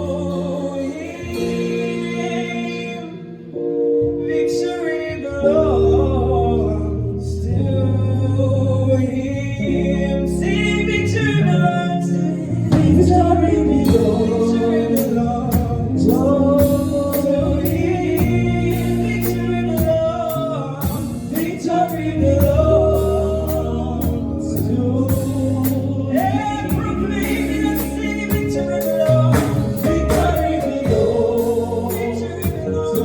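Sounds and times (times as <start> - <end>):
bass notes: 0.0 - 33.0
person singing gospel: 0.0 - 33.0
percussion hits: 26.7 - 33.0.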